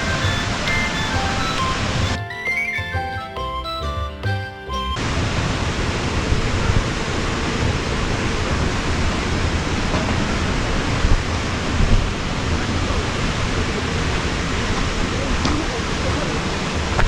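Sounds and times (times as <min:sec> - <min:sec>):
waterfall rushing: 0:00.0 - 0:03.0.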